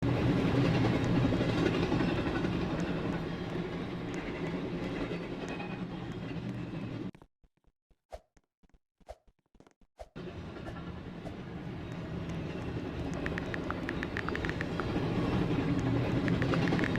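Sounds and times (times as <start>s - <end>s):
train rumbling past: 0.0s - 7.1s, 10.2s - 16.9s
faint clicks: 11.9s - 15.0s, 15.7s - 16.9s.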